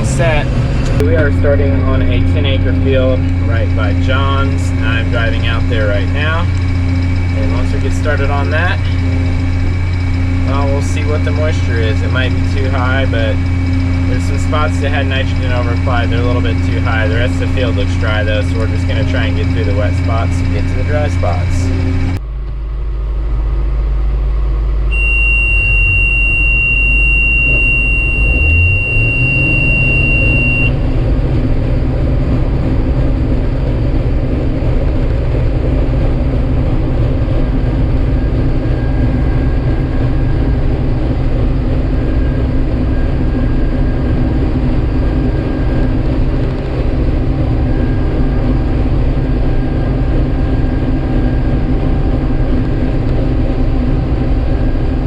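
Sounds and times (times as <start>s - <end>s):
steady high-pitched tone: 0.0s - 22.4s, 23.9s - 34.7s
diesel engine running: 0.0s - 55.0s.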